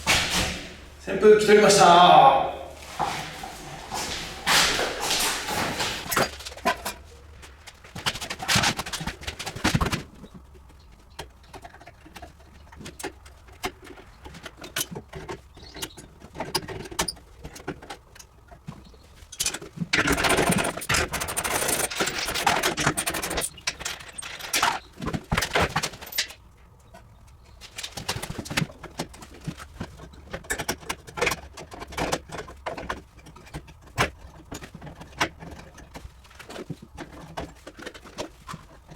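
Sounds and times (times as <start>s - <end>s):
hand tools clattering on metal: 19.3s - 26.4s.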